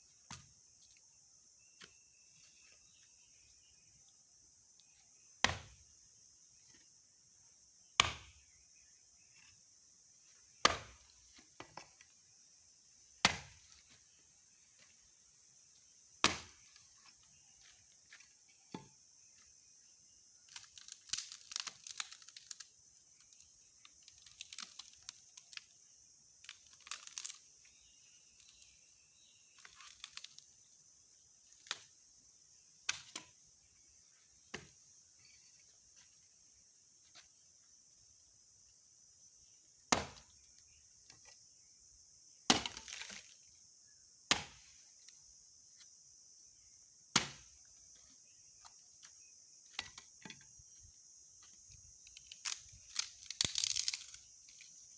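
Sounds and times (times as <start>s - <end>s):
high insect buzz: 0.0s - 54.9s
dry branches snapping: 20.5s - 22.7s, 26.5s - 27.4s, 52.1s - 54.3s.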